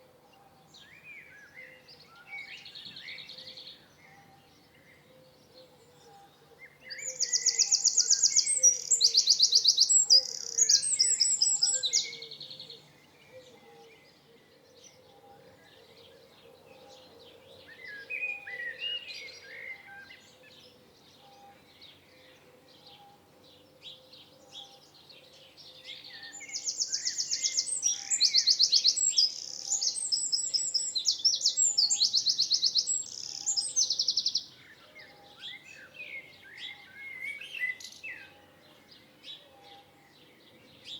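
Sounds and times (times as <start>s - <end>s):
soft bird chirps: 5.6s - 14.2s, 24.6s - 40.9s
songbird trilling: 6.9s - 12.6s, 26.0s - 34.5s.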